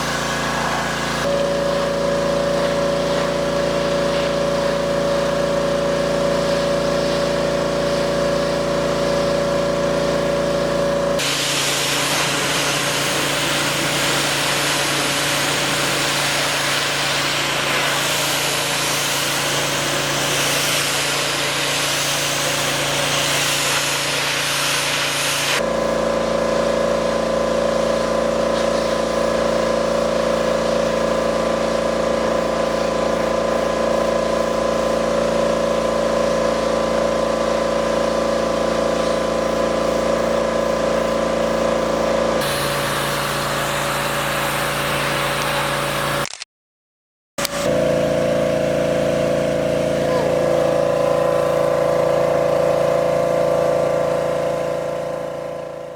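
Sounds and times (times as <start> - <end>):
pressure washer engine humming: 0.0 - 46.2, 47.4 - 55.9
water spray hissing: 11.2 - 25.6, 39.0 - 46.2.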